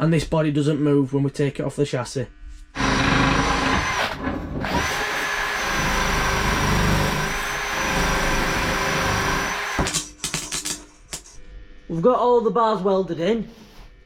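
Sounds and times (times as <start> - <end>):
power tool motor whining: 2.8 - 10.0.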